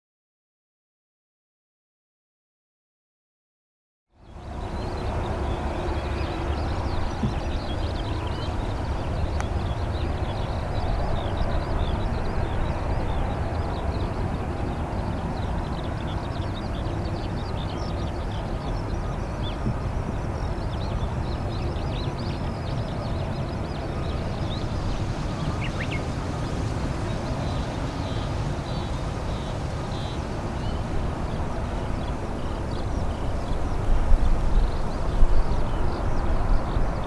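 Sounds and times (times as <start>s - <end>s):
small birds chirping: 4.2s - 37.0s
distant jet engines rumbling: 4.4s - 37.0s.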